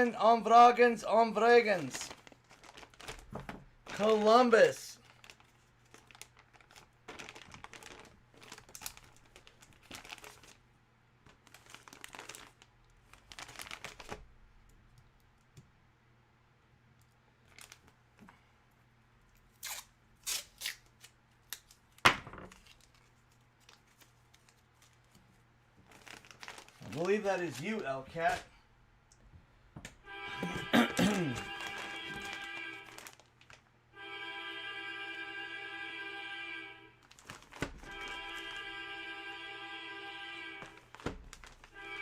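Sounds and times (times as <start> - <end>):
packaging tearing and crinkling: 1.8 - 4.3, 5.0 - 10.6, 11.3 - 14.3, 19.6 - 25.0, 25.8 - 28.4, 30.8 - 33.6, 37.0 - 38.6, 40.6 - 41.8.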